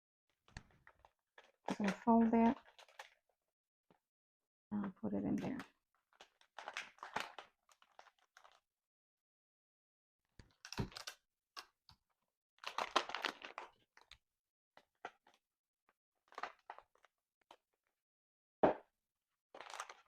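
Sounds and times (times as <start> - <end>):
packaging crinkling: 0.6 - 3.2, 6.0 - 8.6, 12.6 - 14.2, 16.3 - 17.6, 19.6 - 20.0.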